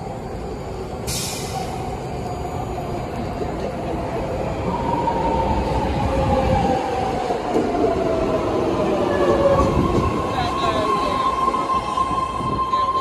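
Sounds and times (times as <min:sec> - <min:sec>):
train rumble and whine: 0:00.0 - 0:13.0
air hiss: 0:01.1 - 0:01.7.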